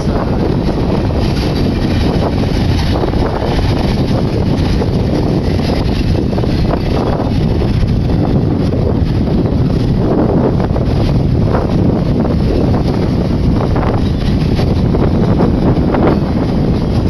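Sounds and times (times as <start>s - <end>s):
train wheels rumbling on rail: 0.0s - 17.0s
wind buffeting microphone: 0.0s - 17.0s.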